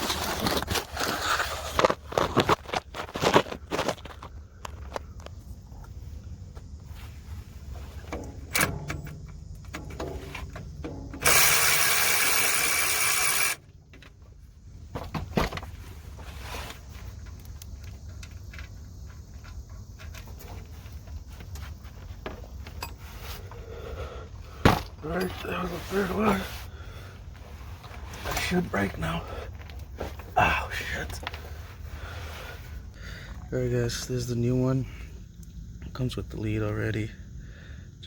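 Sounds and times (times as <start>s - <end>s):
hand tools clicking and knocking: 8.1s - 14.1s
cordless impact wrench running: 11.2s - 13.6s.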